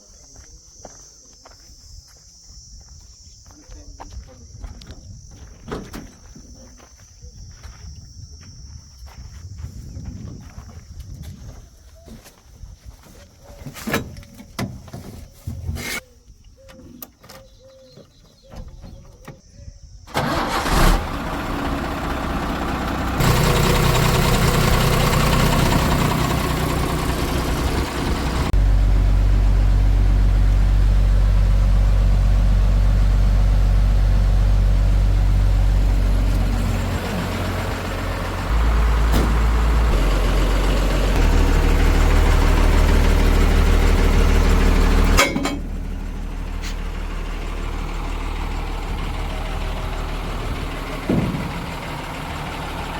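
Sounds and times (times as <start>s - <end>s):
diesel engine starting and running: 20.1s - 52.9s.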